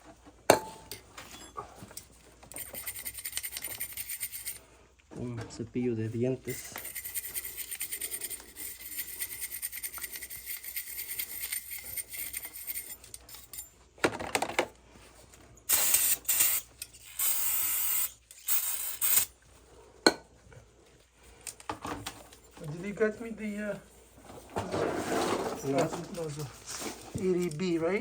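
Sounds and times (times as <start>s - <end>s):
toothbrush scrubbing metal part: 2.5s - 4.6s, 6.5s - 13.6s.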